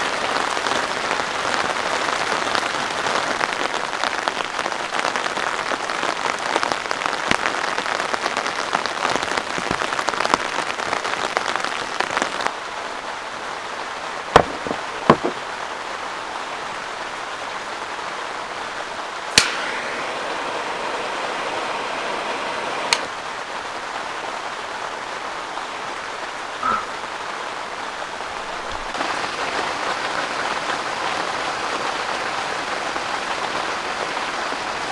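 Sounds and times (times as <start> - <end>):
heavy rain pattering: 0.0 - 13.8, 20.2 - 34.9
sharp knocks and clicks: 14.4 - 15.4.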